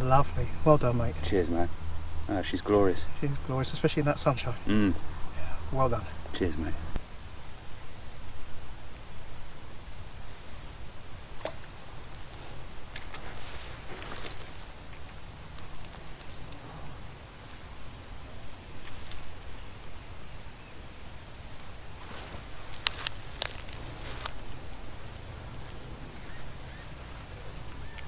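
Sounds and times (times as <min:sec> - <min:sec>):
songbird high thin notes: 0:00.0 - 0:07.0
low outdoor rumble: 0:00.0 - 0:28.0
sharp clicks and rustles: 0:11.4 - 0:17.6, 0:21.6 - 0:24.6.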